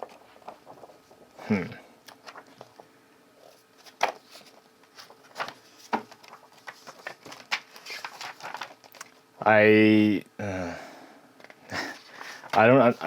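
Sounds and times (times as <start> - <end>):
paper pages rustling: 0.0 - 1.2, 2.1 - 9.2, 11.9 - 13.0.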